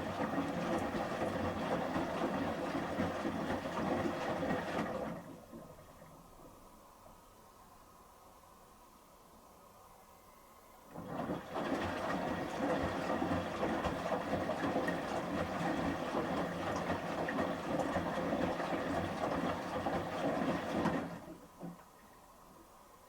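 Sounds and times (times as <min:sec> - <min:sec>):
washing machine drum sloshing: 0:00.0 - 0:06.7, 0:10.9 - 0:22.2.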